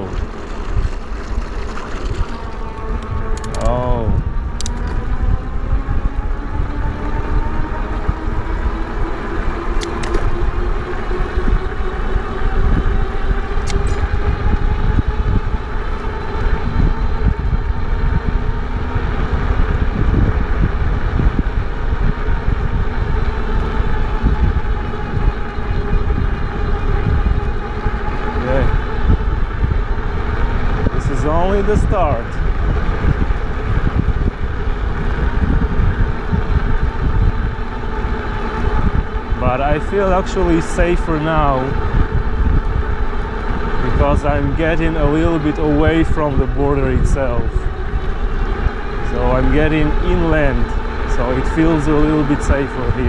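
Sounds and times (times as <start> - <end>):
wind on microphone: 0.0 - 53.0
electric motor whine: 1.8 - 53.0
brief clicks: 2.9 - 3.7.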